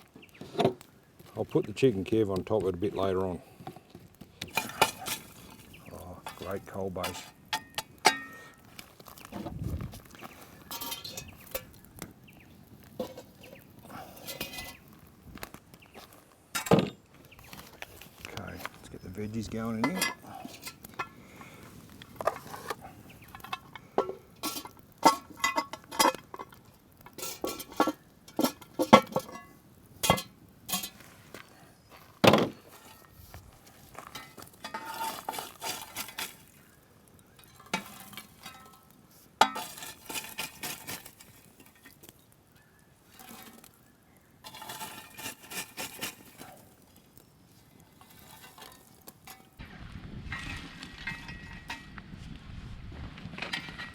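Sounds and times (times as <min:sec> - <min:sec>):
scraping in a pan: 0:03.5 - 0:12.0, 0:12.7 - 0:42.2, 0:43.0 - 0:49.6, 0:50.3 - 0:52.0, 0:53.4 - 0:53.9.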